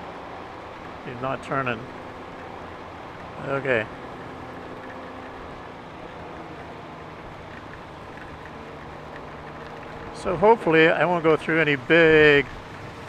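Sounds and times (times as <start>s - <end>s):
motorcycle engine humming: 0.0s - 13.0s
wind and road noise: 0.0s - 13.0s.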